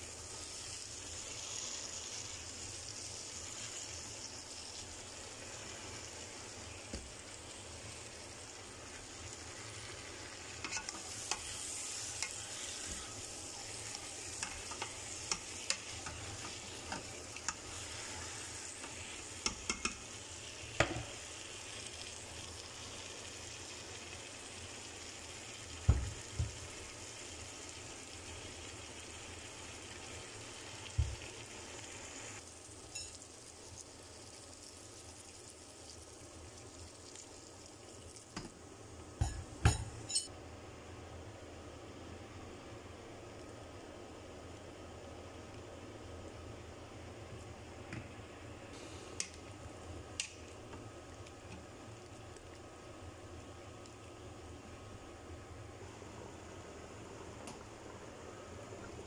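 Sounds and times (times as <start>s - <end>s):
chicken frying in oil: 0.0s - 40.3s
spoon scraping pot: 10.6s - 11.5s.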